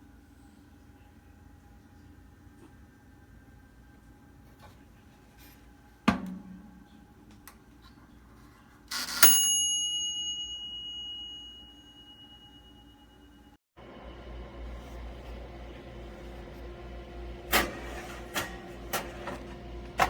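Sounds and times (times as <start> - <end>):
timer bell ding: 8.9 - 13.6.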